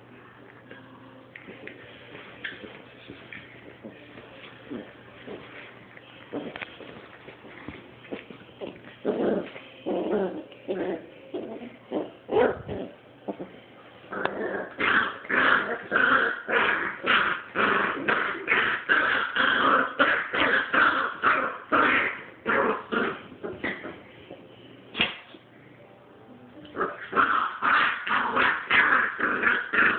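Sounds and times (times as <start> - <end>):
dogs growling and snarling: 8.6 - 13.5, 14.1 - 24.0, 26.7 - 29.9.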